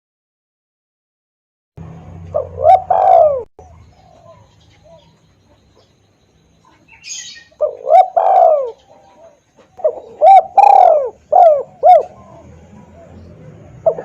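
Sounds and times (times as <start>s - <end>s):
dove cooing: 2.3s - 5.9s, 6.6s - 14.0s.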